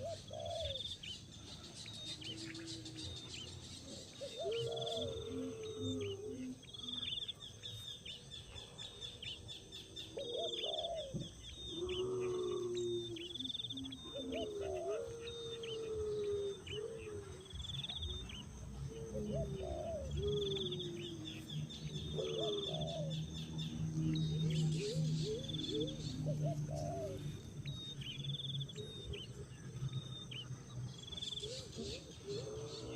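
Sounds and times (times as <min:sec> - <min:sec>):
low bird calls: 0:00.0 - 0:32.9
steady low hum: 0:11.2 - 0:32.9.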